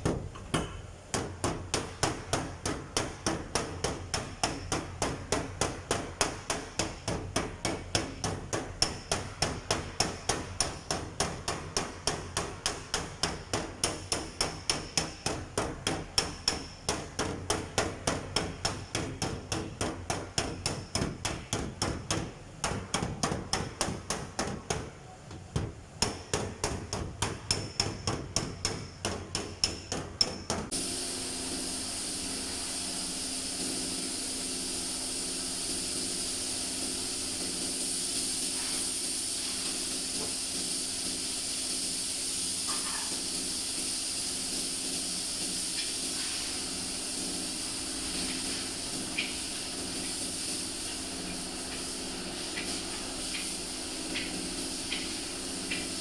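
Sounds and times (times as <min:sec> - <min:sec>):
hammer beating steel panel: 0:00.0 - 0:30.8
steady hiss: 0:00.0 - 0:56.0.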